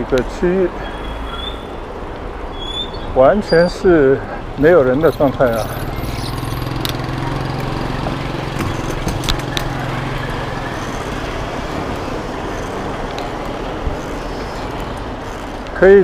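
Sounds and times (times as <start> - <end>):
vehicle engine hum: 0.0 - 16.0.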